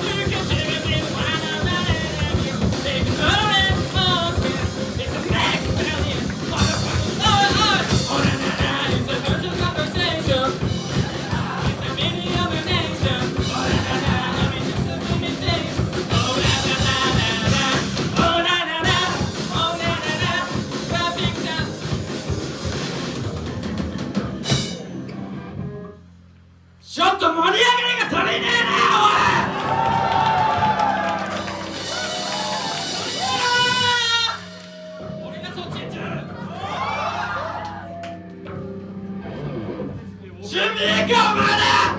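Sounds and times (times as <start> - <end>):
person singing: 0.0 - 21.8, 27.9 - 35.4, 40.4 - 41.9
rock band playing live: 0.0 - 26.0, 28.0 - 41.9.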